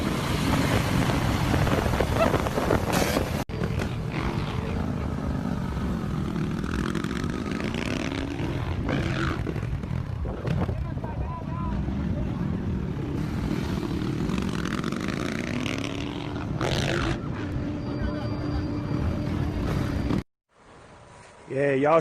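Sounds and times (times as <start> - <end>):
rushing wind: 0.0 - 17.4
motorcycle engines running: 0.0 - 20.2.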